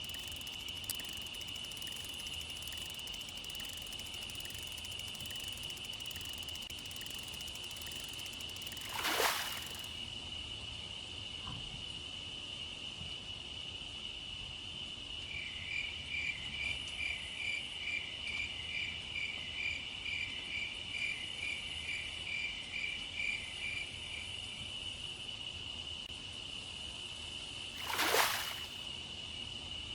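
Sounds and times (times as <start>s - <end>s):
crickets trilling: 0.0s - 10.1s, 27.8s - 28.8s
pulsing insect call: 0.0s - 10.1s, 27.8s - 28.8s.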